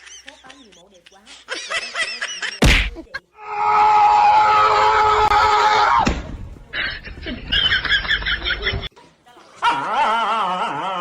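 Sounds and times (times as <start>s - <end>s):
loud steady scream: 3.4s - 6.1s.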